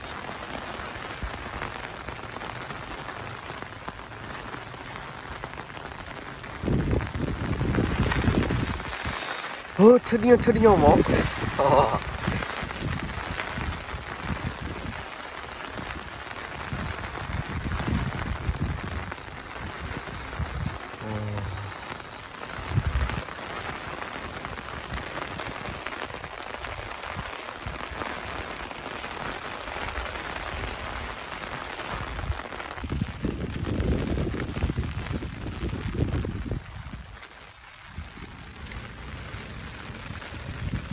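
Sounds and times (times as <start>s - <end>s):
heavy rain: 0.0s - 40.9s
low rumbles: 15.7s - 23.7s.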